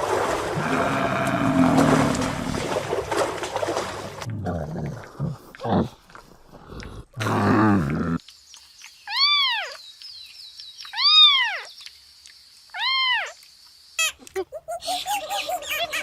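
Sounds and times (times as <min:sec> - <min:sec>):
low animal call: 0:00.6 - 0:02.7.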